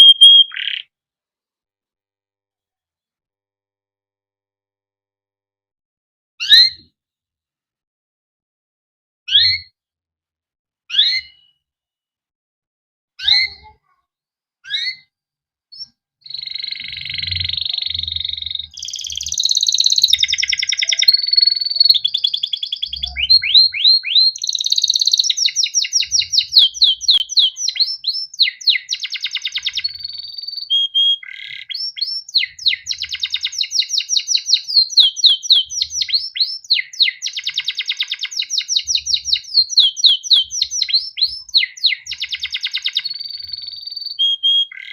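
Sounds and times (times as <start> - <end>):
canary chirps: 0.0 - 0.9, 10.9 - 11.6, 13.2 - 14.0, 14.6 - 15.1, 15.7 - 44.9
canary trilling song: 0.0 - 0.9, 6.4 - 6.9, 9.3 - 9.7, 10.9 - 11.6, 13.2 - 13.9, 14.6 - 15.1, 15.7 - 44.9.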